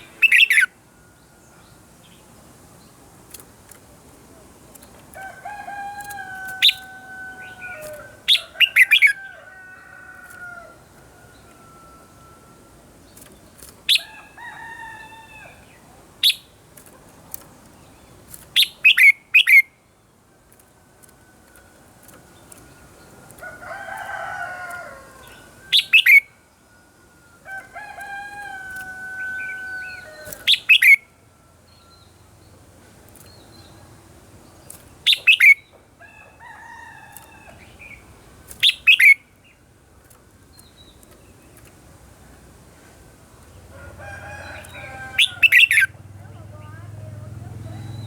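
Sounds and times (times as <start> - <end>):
bird drawn-out calls: 44.5 - 46.0.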